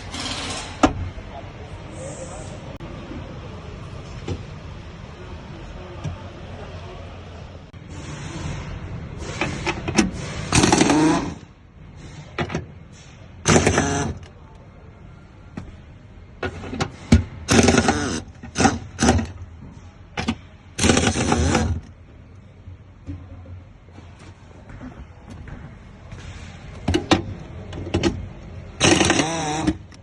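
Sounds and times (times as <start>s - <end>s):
handheld power tool bursts: 28.8s - 29.8s.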